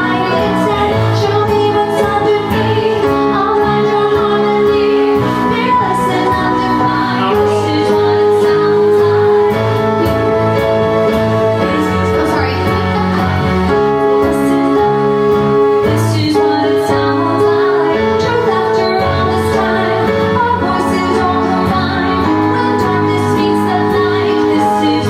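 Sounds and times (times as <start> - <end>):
sustained pop chords: 0.0 - 25.0.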